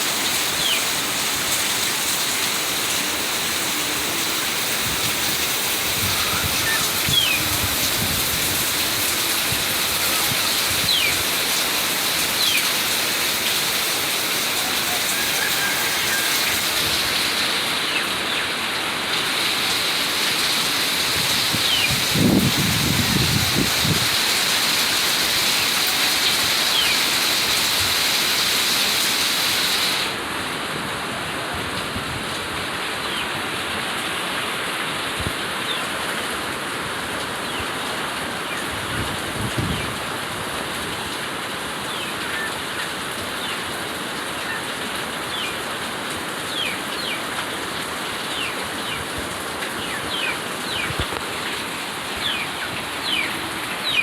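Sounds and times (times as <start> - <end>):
steady rain hiss: 0.0 - 54.0
high downward bird chirps: 6.0 - 7.5.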